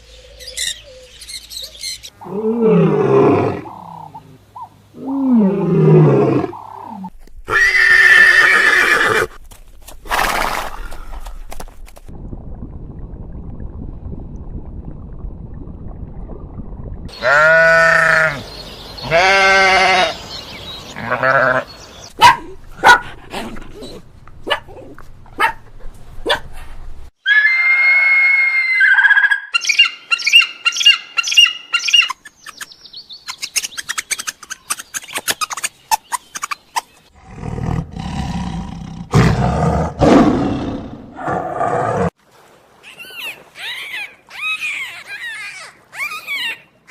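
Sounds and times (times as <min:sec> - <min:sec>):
animal bleats: 0:17.1 - 0:18.4, 0:19.0 - 0:20.2, 0:21.0 - 0:21.7
high held animal call: 0:27.2 - 0:32.1.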